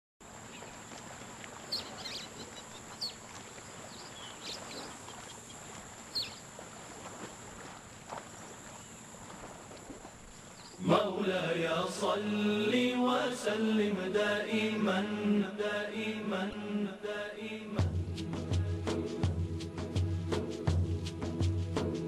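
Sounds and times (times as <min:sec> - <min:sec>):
background hiss: 0:00.2 - 0:22.0
wild birds chirping: 0:00.3 - 0:11.0.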